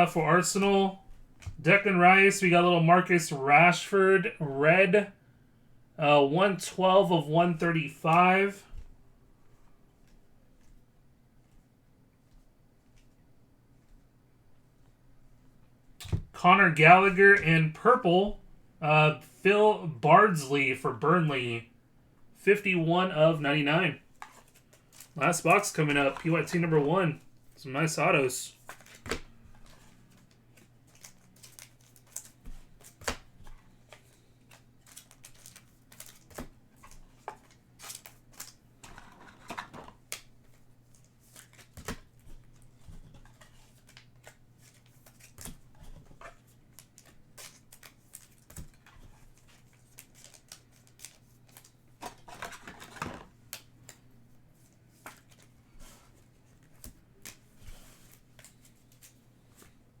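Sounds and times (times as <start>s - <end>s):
crinkly rustle of pack wrappers: 29.7s - 33.0s, 33.8s - 39.9s, 46.2s - 53.3s.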